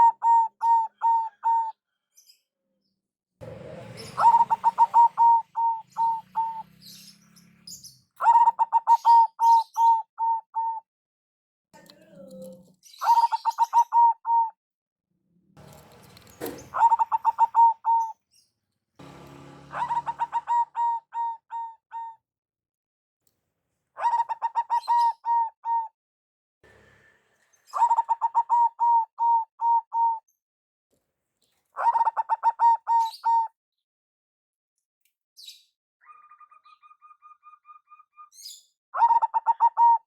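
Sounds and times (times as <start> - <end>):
doves cooing: 0.0 - 1.8, 3.4 - 10.8, 11.8 - 14.5, 15.6 - 18.1, 19.0 - 22.2, 24.0 - 25.8, 27.7 - 30.1, 31.8 - 33.5.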